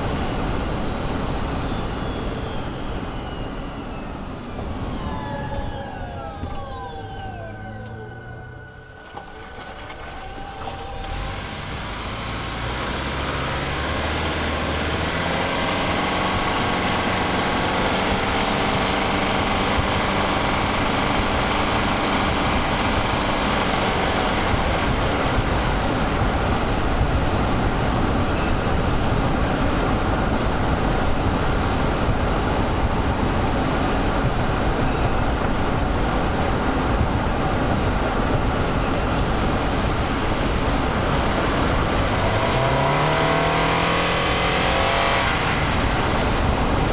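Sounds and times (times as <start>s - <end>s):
faint high whine: 0.0s - 26.2s
car engine humming: 0.0s - 46.9s
road and tyre noise: 0.0s - 46.9s.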